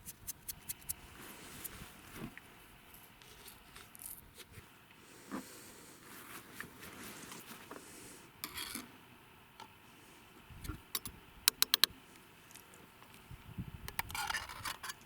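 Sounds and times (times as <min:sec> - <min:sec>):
sharp clicks: 0:11.0 - 0:11.9.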